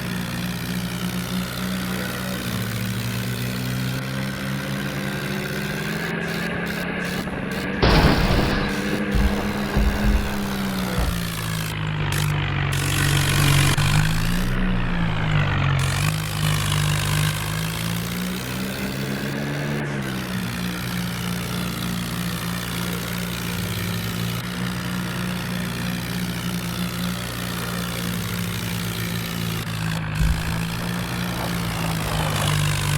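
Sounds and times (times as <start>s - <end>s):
tractor diesel engine revving: 0.0s - 32.9s
short thump: 7.8s - 15.5s, 30.0s - 32.9s.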